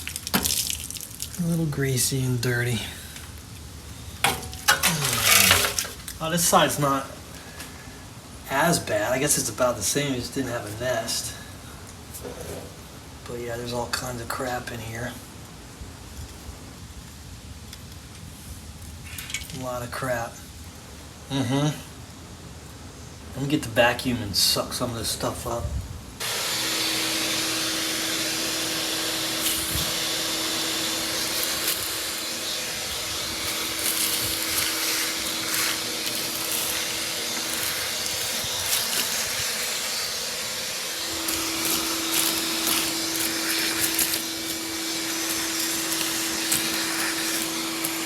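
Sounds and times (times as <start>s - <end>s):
debris rattling up nozzle: 0.0s - 1.4s, 4.2s - 6.2s, 29.2s - 48.0s
vacuum cleaner running: 26.2s - 48.0s.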